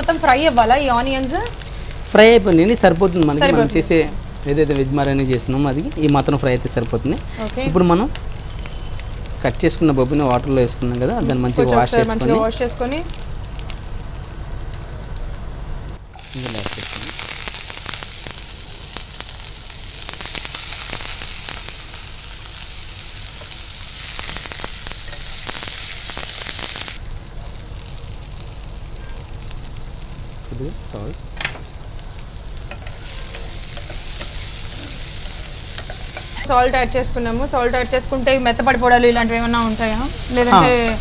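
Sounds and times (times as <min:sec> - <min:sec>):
cauliflower sizzling in hot oil: 0:00.0 - 0:41.0.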